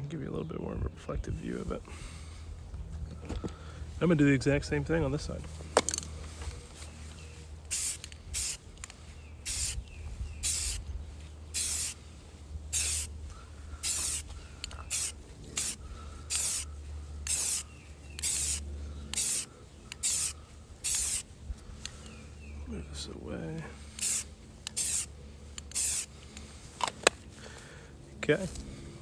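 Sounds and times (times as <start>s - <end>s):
spray paint can hissing: 7.7s - 9.8s, 10.4s - 10.9s, 11.5s - 12.1s, 12.7s - 13.2s, 13.8s - 21.3s, 23.9s - 26.1s.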